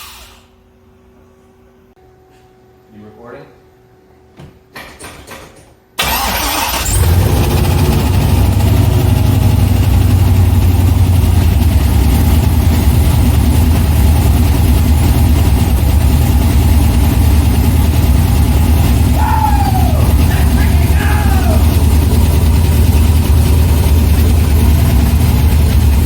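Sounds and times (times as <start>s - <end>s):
car engine starting and running: 6.0s - 26.0s.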